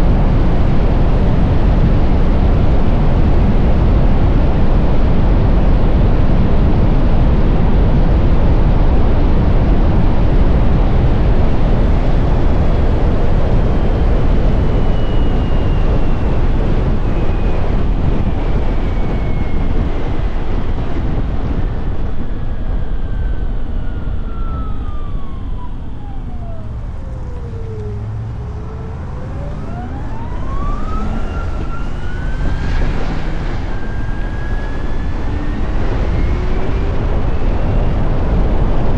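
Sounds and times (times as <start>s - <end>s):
wind rush on microphone: 0.0s - 38.9s
electric motorcycle motor whine: 13.7s - 38.8s.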